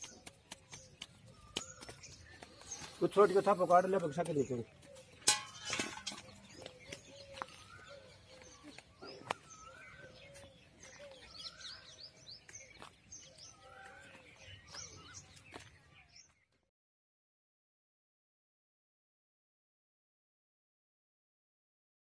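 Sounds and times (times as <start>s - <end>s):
birds chirping: 0.0s - 16.7s.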